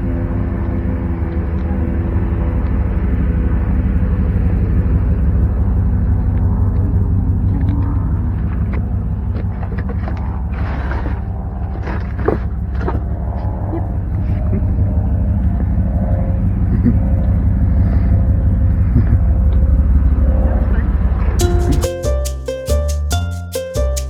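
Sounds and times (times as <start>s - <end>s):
vehicle engine rumbling: 0.0s - 24.0s.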